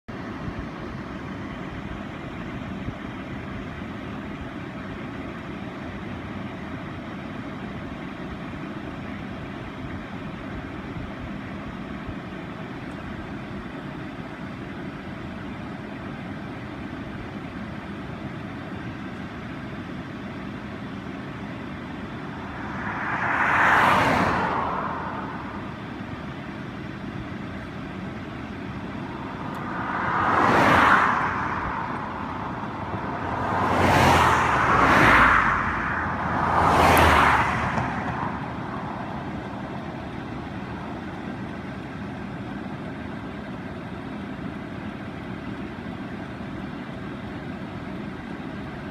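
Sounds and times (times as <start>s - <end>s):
outdoor rushing noise: 20.7s - 42.6s
vehicle passing by: 21.5s - 26.7s, 27.6s - 41.8s.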